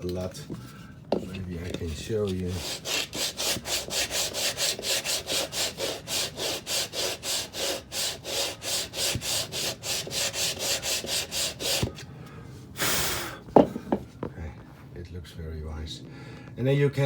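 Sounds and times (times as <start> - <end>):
hand tool scraping wooden deck seam: 0.0 - 12.1.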